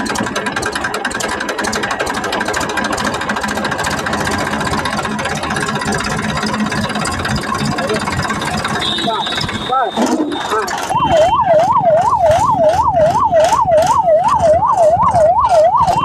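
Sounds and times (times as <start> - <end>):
toy tractor chugging: 0.0 - 16.0.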